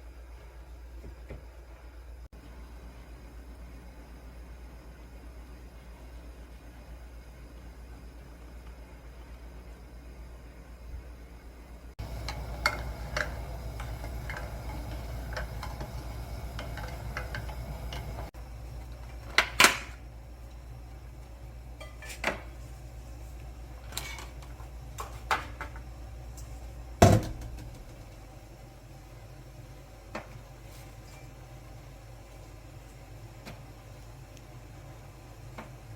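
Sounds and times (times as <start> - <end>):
low steady hum: 0.0 - 35.9
dishes and utensils clinking: 12.2 - 18.3, 21.8 - 22.4.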